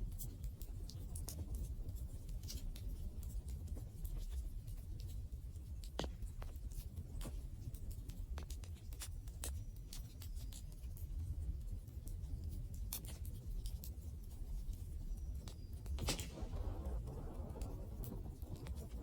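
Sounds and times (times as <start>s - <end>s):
wood fire crackling: 16.0s - 19.0s.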